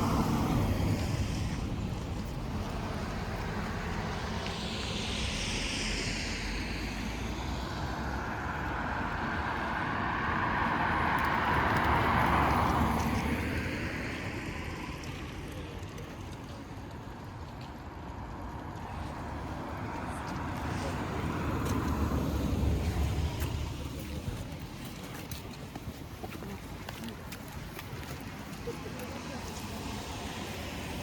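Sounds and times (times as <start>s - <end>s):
vehicle passing by: 0.0s - 15.9s.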